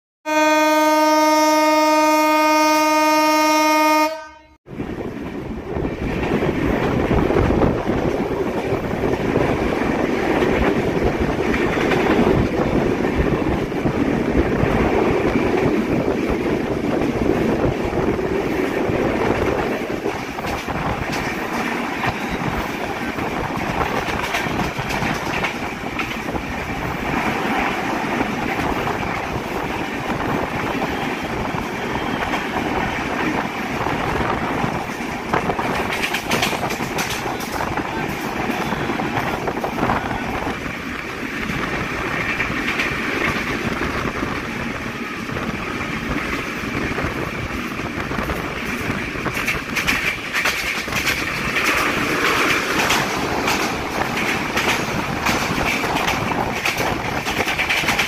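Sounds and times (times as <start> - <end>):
train horn: 0.3 - 4.6
train wheels clattering on rails: 5.1 - 58.0.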